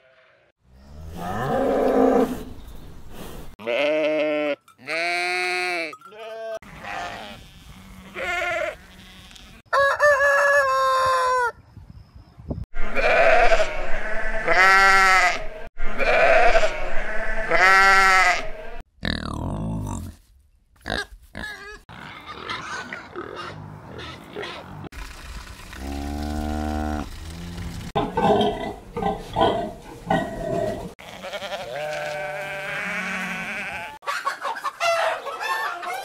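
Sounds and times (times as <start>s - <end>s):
animal bleating: 3.6s - 9.6s, 12.9s - 20.1s, 31.0s - 34.0s
rooster crowing: 9.7s - 11.6s, 34.8s - 36.0s.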